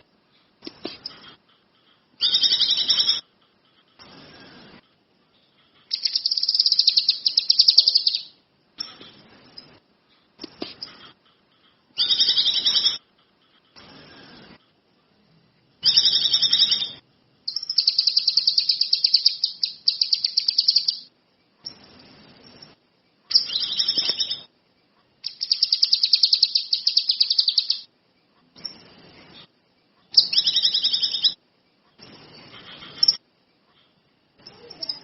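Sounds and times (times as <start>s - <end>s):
songbird singing: 2.0s - 4.7s, 5.3s - 9.8s, 11.6s - 13.1s, 15.8s - 35.0s.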